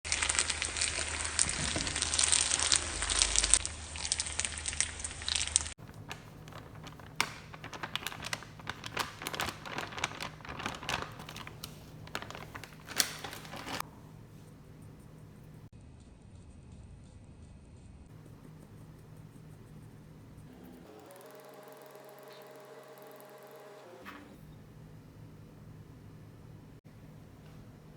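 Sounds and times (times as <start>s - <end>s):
crackles and snaps: 0.1s - 13.8s
crackling and crinkling: 0.1s - 15.7s.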